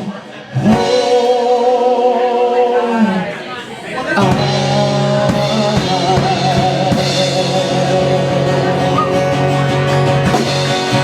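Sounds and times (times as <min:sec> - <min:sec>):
rock band playing: 0:04.0 - 0:11.0.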